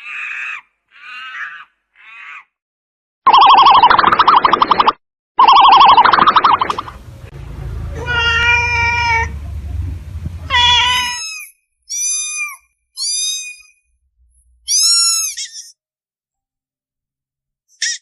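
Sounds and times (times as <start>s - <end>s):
young animal crying: 0.0s - 2.6s, 7.9s - 9.4s, 10.5s - 13.8s
low rumble: 6.6s - 11.0s.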